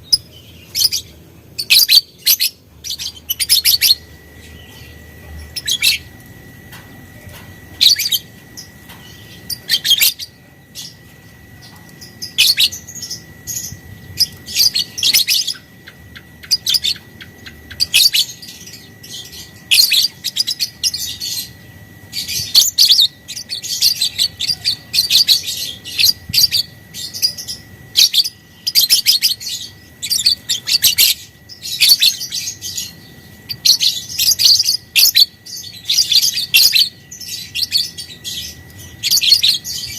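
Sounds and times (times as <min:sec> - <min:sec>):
lovebird chattering: 0:00.0 - 0:06.2.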